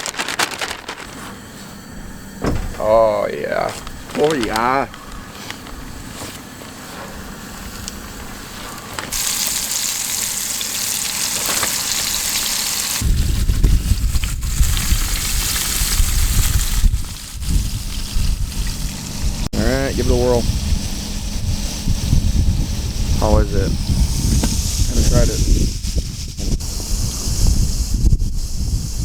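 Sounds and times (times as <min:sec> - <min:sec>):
heavy low rumble: 0:00.0 - 0:06.2, 0:13.0 - 0:27.0
food sizzling in hot oil: 0:09.1 - 0:19.4.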